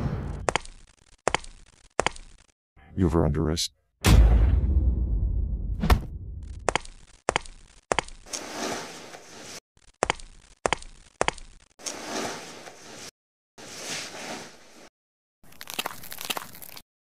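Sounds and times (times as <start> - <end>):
deep boom: 4.0 - 6.4.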